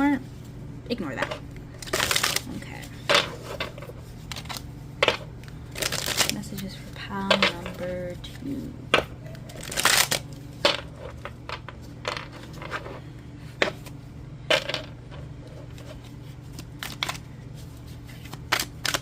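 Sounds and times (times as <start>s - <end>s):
steady low hum: 0.0s - 19.0s
cards shuffling and snapping: 1.6s - 12.9s, 15.7s - 17.3s, 17.9s - 19.0s.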